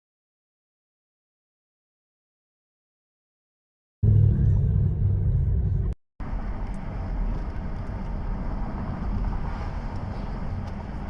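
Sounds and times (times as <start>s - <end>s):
car engine and road noise: 4.0s - 11.0s.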